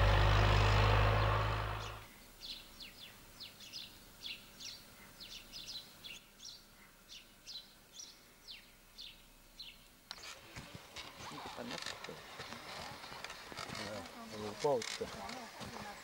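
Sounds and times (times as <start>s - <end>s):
loud low engine noise: 0.0s - 2.0s.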